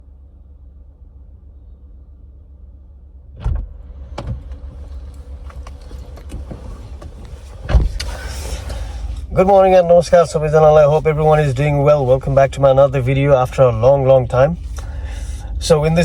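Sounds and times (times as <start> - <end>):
vehicle rumbling: 0.0 - 16.0
thump: 3.4 - 4.4, 7.6 - 8.0.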